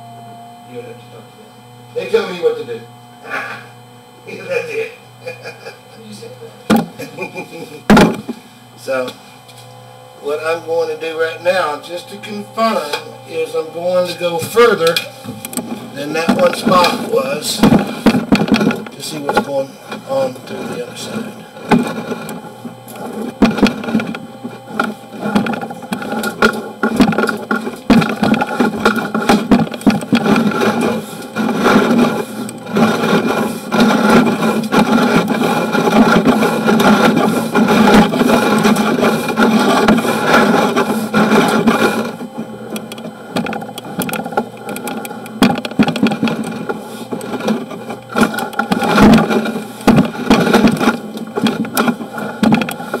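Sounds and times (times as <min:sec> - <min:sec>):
cable rattling and scraping in drain: 0:12.6 - 0:53.0.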